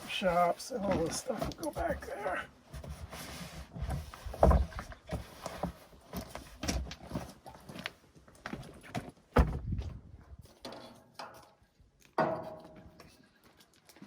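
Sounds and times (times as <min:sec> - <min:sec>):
knocks and clunks of handling: 0:00.8 - 0:13.2
loud thump: 0:09.4 - 0:09.9.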